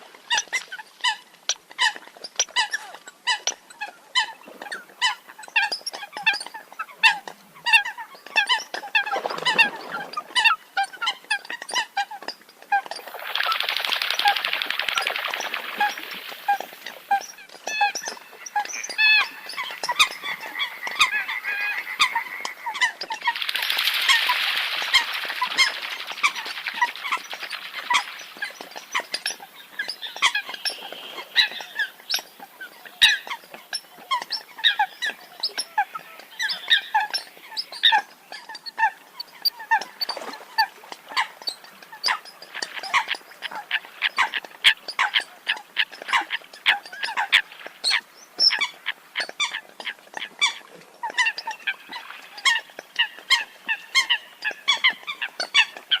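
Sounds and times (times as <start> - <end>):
coots honking calls: 15.2 - 28.1.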